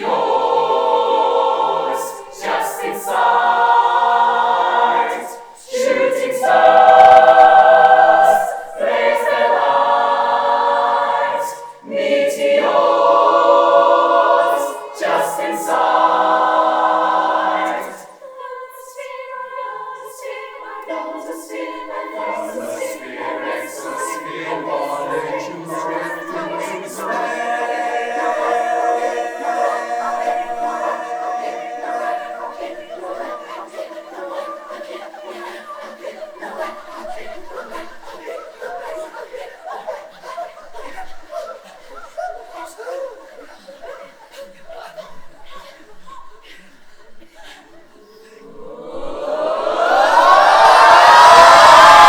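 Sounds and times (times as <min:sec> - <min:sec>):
choir singing held chords: 0:00.0 - 0:42.8, 0:48.0 - 0:52.0.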